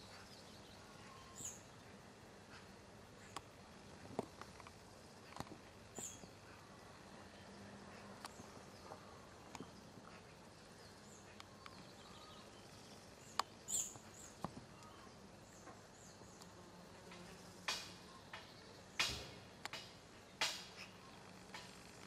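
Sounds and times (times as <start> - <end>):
faint bird chirps: 0.0 - 4.0, 5.9 - 16.6.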